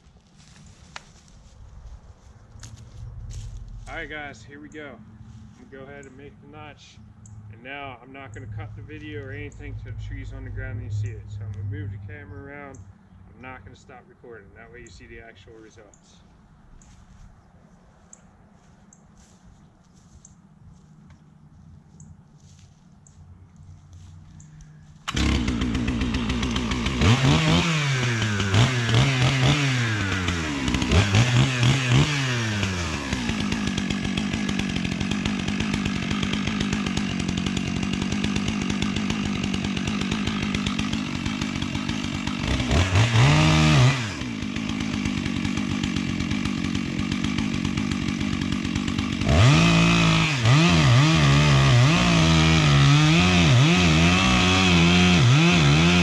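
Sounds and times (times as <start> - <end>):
chainsaw revving and cutting: 24.9 - 56.0.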